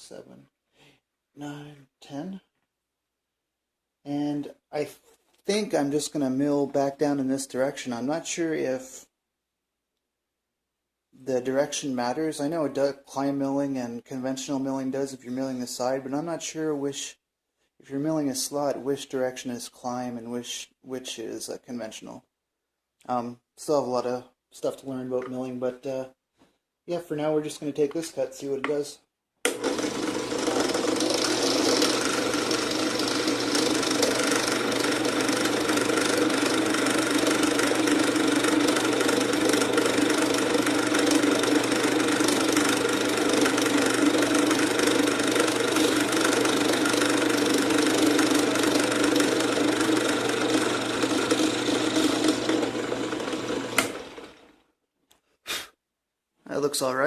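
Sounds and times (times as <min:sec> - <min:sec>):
drill press whining and cutting wood: 0:29.5 - 0:54.5.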